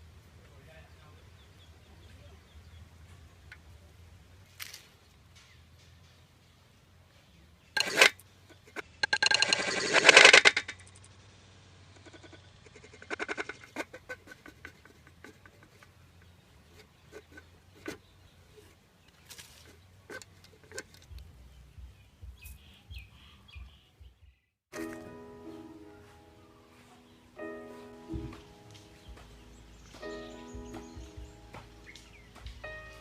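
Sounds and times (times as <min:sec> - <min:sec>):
clicks and rustles: 0:07.8 - 0:11.2, 0:11.9 - 0:21.4
faint high chirps: 0:21.8 - 0:33.0.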